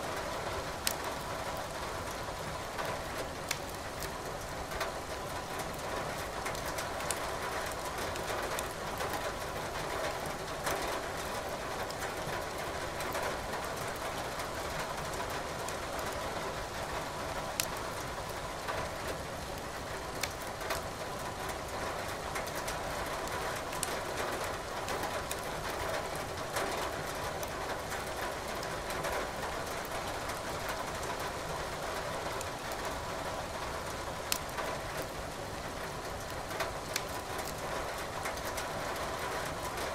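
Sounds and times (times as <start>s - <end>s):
wood fire crackling and popping: 3.4s - 4.2s, 6.5s - 8.8s, 20.1s - 20.4s, 23.6s - 23.9s, 34.2s - 35.0s, 36.2s - 38.5s.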